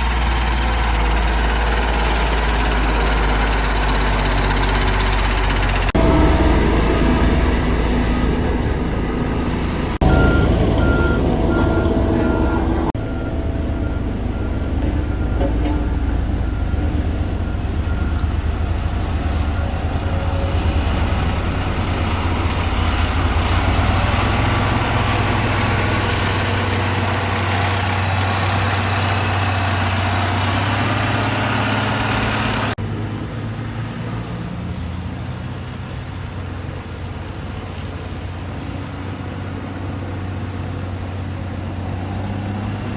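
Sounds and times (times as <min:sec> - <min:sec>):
heavy diesel engine: 0:00.0 - 0:42.9
reversing alarm beeping: 0:01.1 - 0:28.9.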